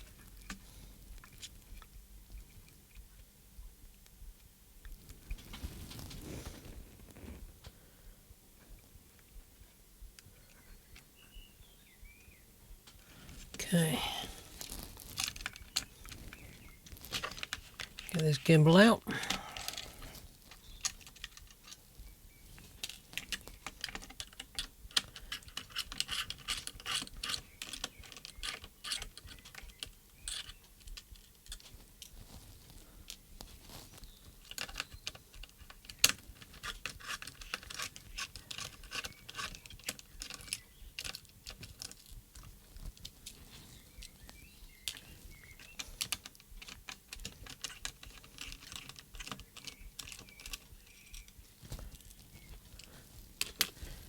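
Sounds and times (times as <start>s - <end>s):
plastic and metal parts clicking: 46.0s - 51.3s.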